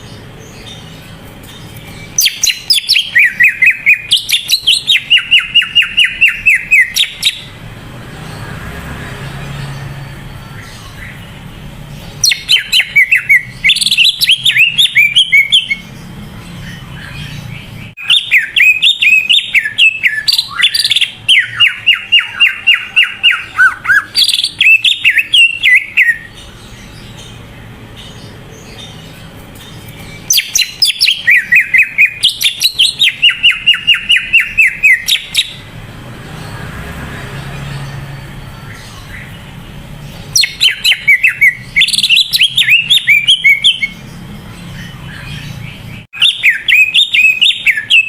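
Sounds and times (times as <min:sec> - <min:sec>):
bird singing whistled trills: 0:01.6 - 0:07.6, 0:12.2 - 0:16.0, 0:16.7 - 0:26.4, 0:29.8 - 0:35.7, 0:40.3 - 0:48.0.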